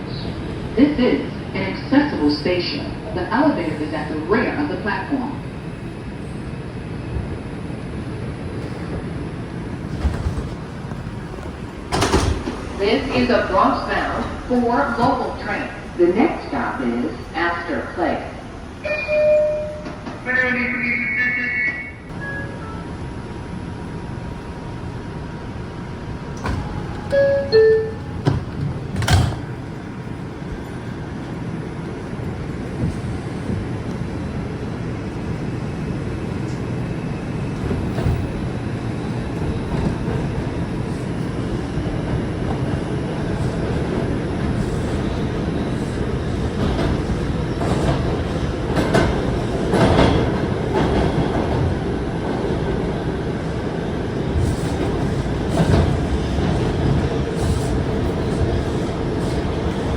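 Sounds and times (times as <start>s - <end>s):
subway doors closing: 0.0s - 59.9s
train running noise: 0.0s - 59.9s
clatter over rails: 42.1s - 52.4s.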